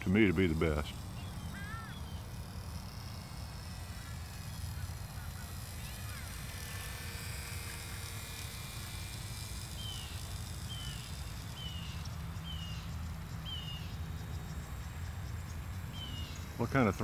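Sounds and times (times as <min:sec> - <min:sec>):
bird downward-slurred call: 0:01.1 - 0:02.3.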